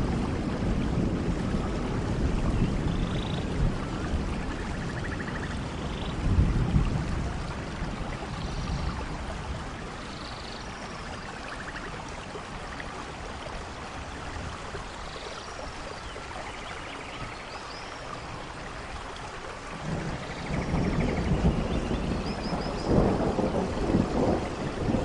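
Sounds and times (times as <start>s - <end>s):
low thunder rumble: 0.0s - 9.8s, 19.7s - 25.0s
steady rain falling: 0.0s - 25.0s.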